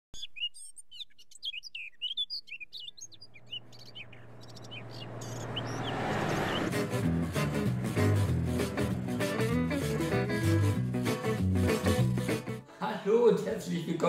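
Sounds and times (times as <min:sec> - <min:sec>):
songbirds chirping: 0:00.2 - 0:06.8
truck engine approaching: 0:03.0 - 0:11.6.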